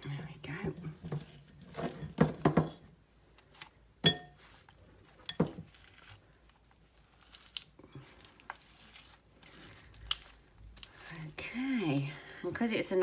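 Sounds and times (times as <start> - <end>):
kitchenware clinking and knocking: 1.0 - 2.9, 4.0 - 4.4, 5.2 - 5.7.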